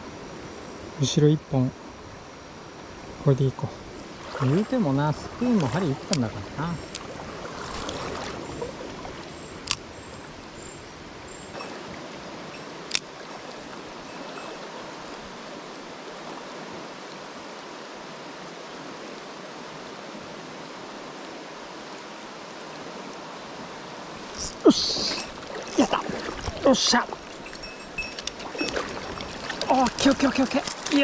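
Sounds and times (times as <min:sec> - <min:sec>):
stream water rushing: 0:00.0 - 0:31.0.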